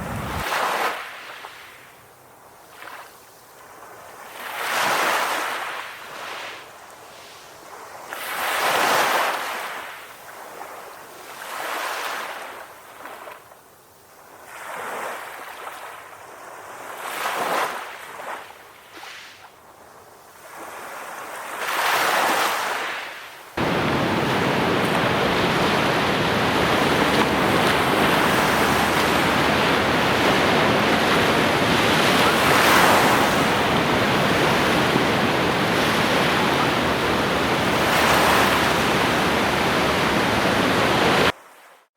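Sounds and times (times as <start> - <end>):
steady rush of surf: 0.0 - 0.7, 23.6 - 41.3
ocean waves breaking: 0.0 - 1.4, 23.6 - 41.3.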